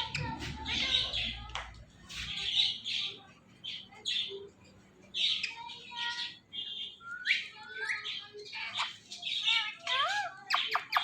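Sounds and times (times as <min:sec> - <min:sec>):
parrot chirps and squawks: 0:05.1 - 0:11.0.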